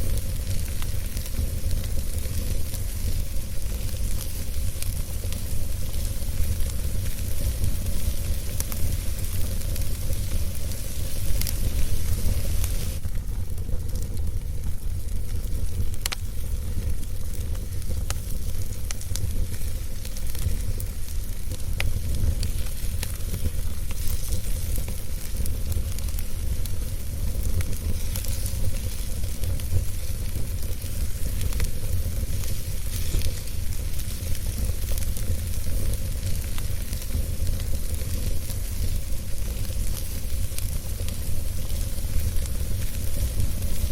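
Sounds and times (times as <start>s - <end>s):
burning logs popping: 0.0s - 43.9s
wood fire crackling: 0.0s - 43.9s.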